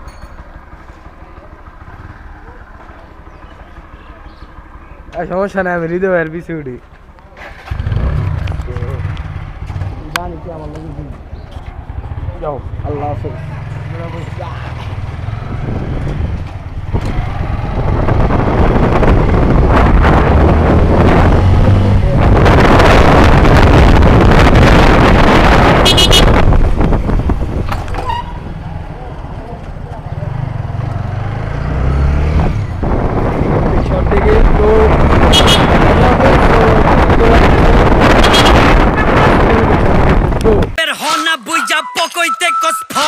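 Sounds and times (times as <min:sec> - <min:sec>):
motorcycle engine hum: 0:00.0 - 0:40.8
wind buffeting microphone: 0:15.0 - 0:29.5, 0:31.7 - 0:40.8.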